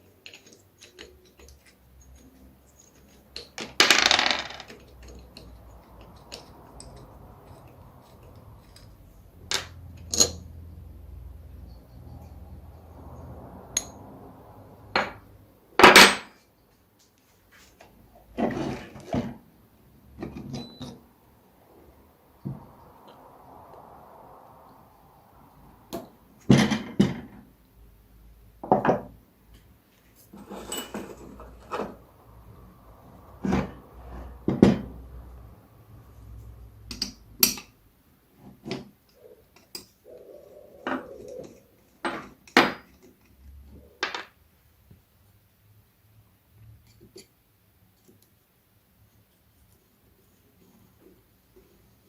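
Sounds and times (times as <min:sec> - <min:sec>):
metal tools clinking on workbench: 0:30.4 - 0:31.8.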